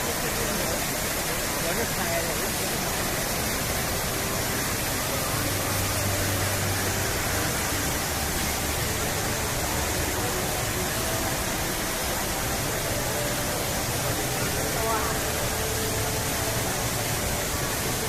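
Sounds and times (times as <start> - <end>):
faint crowd voices: 0.0 - 18.0
falling water rushing: 0.0 - 18.0.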